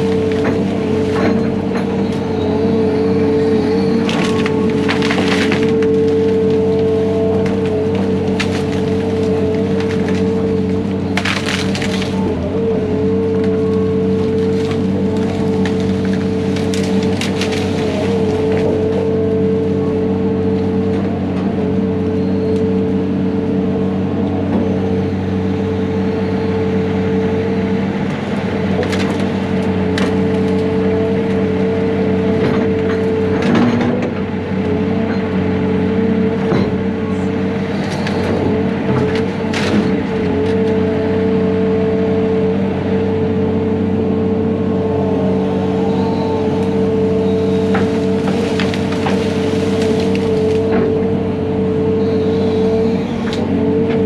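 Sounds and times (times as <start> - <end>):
wood splintering and snapping: 0.0 - 2.3, 3.1 - 21.4, 27.9 - 34.6, 36.3 - 41.3, 45.5 - 54.0
diesel engine under load: 0.0 - 54.0.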